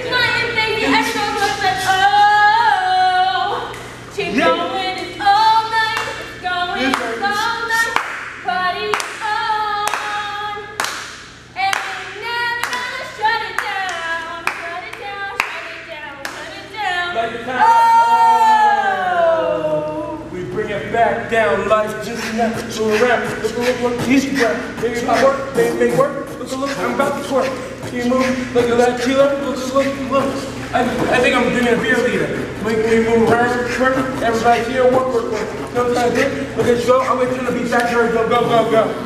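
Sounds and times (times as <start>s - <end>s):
sharp hand claps: 7.9s - 9.2s, 9.8s - 10.2s, 10.8s - 13.0s, 13.6s - 16.5s.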